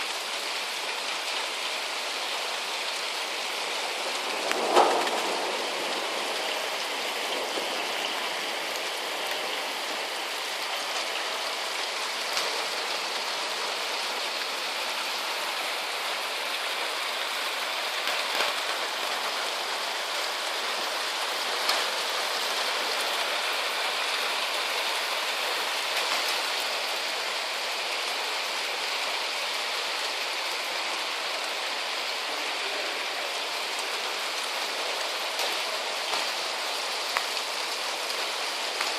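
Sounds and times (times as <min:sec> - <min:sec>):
heavy rain on hard surfaces: 0:00.0 - 0:38.9
sharp raindrop hits: 0:02.4 - 0:14.7, 0:15.4 - 0:27.0, 0:32.6 - 0:38.9.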